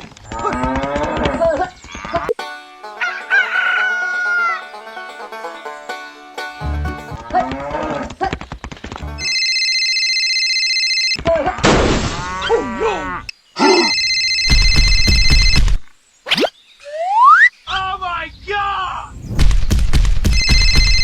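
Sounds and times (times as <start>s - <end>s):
telephone ringing tone: 9.2s - 11.2s, 13.9s - 15.7s, 20.3s - 21.0s.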